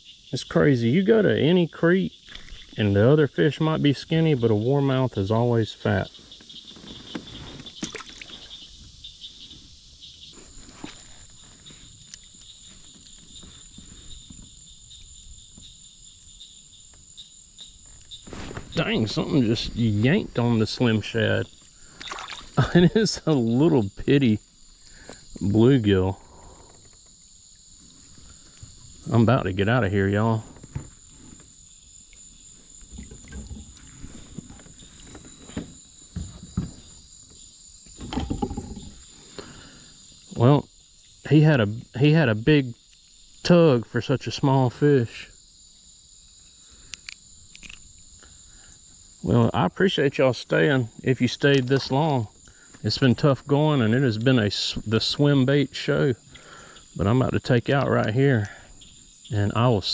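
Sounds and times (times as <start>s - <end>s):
high-pitched insect chorus: 0.0s - 59.9s
rustling and clatter from handling: 6.1s - 8.0s, 32.7s - 39.1s.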